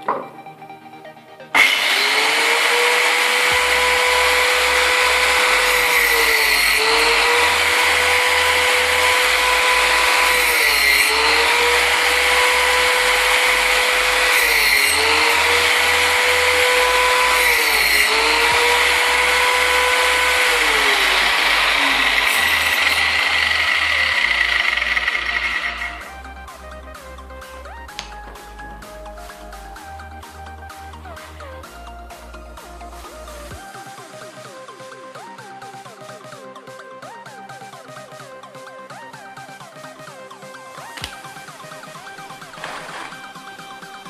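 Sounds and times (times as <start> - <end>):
angle grinder running: 1.6 - 26.3.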